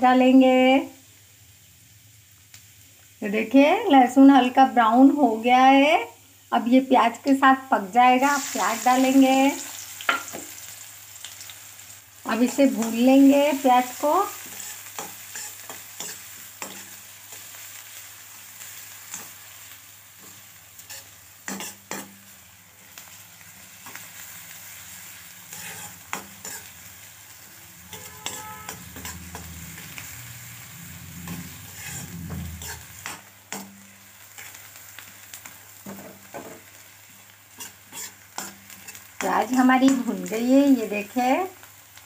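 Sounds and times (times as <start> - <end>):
onion sizzling in hot oil: 0.0 - 42.0
metal spoon scraping a pan: 12.5 - 17.7, 18.6 - 19.4, 20.2 - 22.2, 25.5 - 26.8, 27.8 - 30.2, 31.2 - 34.6, 37.5 - 40.3.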